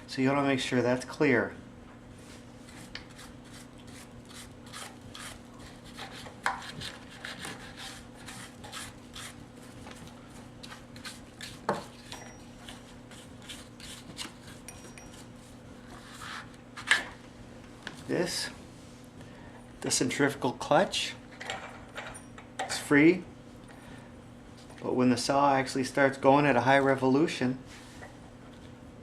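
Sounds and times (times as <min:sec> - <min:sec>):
brush scraping: 0:02.2 - 0:16.6.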